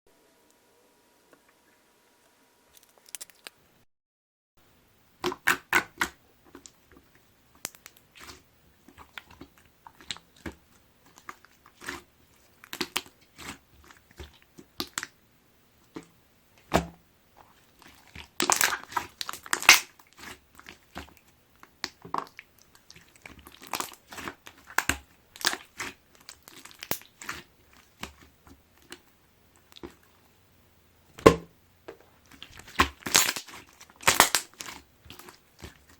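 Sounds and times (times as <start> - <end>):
slime being pressed and stretched: 32.4 - 35.9.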